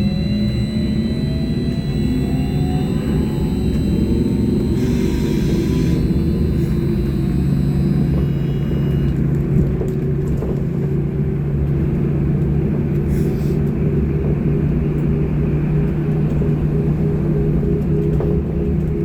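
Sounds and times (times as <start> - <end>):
electric drive hum: 0.0 - 9.2
faint high whine: 0.0 - 9.2.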